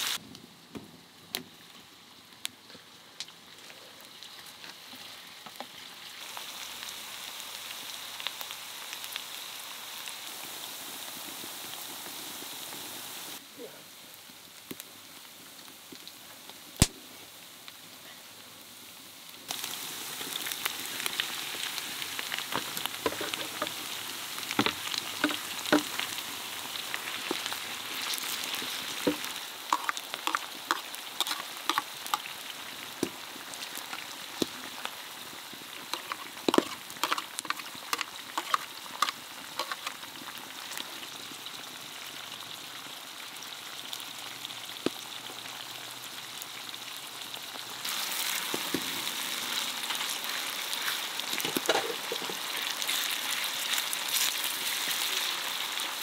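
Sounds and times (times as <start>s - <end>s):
food sizzling in a pan: 0.0s - 0.2s, 3.4s - 56.0s.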